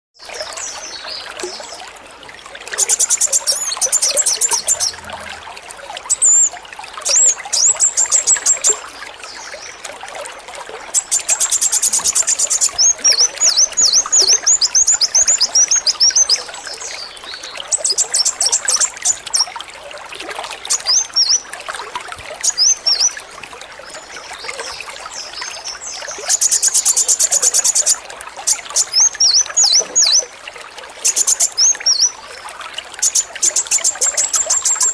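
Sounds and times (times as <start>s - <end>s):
trickling water: 0.2s - 34.9s
bird singing fast trills and chirps: 2.8s - 5.3s, 11.0s - 19.5s, 20.7s - 21.5s, 22.4s - 23.2s, 24.0s - 30.3s, 31.0s - 32.2s, 33.0s - 34.9s.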